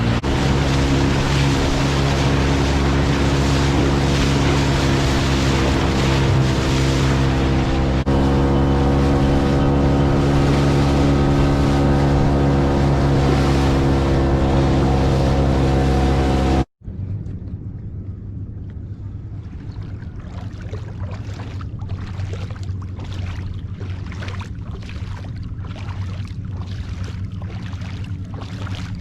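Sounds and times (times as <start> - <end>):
outboard motor running: 0.0 - 16.7, 19.3 - 29.0
water noise: 0.0 - 29.0
wind: 0.0 - 29.0.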